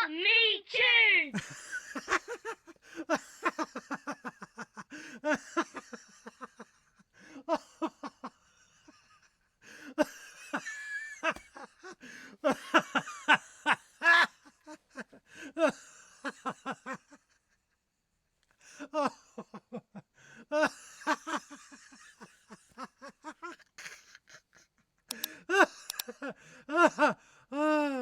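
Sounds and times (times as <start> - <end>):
person laughing: 1.3 - 9.0, 9.8 - 15.7, 20.5 - 26.2.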